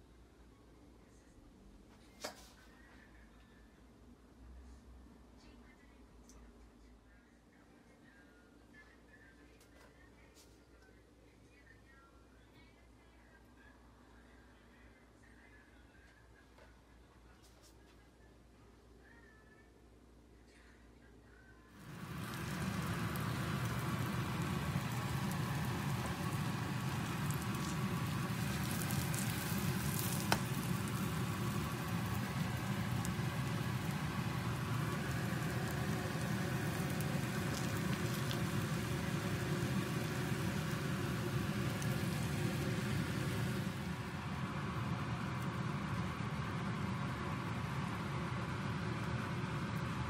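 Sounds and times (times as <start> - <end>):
food sizzling in oil: 21.8 - 49.8.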